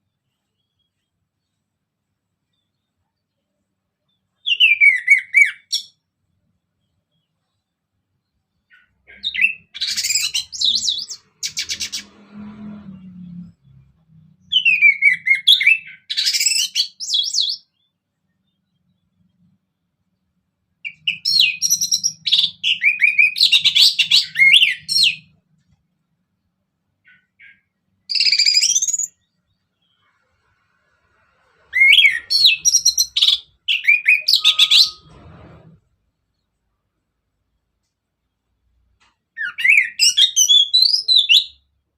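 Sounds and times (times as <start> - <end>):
bird warbling song: 8.5 - 12.2, 20.8 - 25.4, 31.7 - 35.2.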